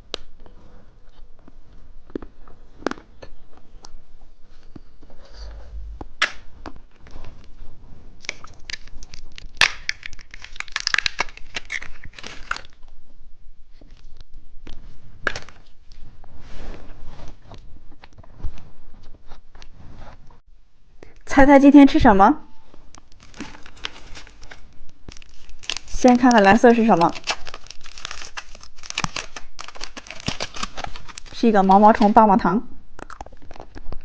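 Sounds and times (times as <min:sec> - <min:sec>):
candy wrapper crinkling and tearing: 0:08.2 - 0:12.9, 0:23.0 - 0:32.1, 0:33.0 - 0:34.0.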